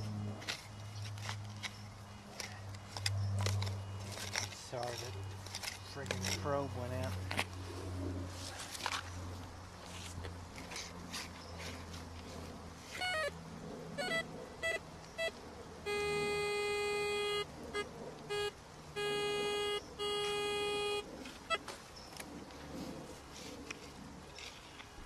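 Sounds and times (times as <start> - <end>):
metal detector beeps: 13.0 - 13.3, 14.0 - 21.6.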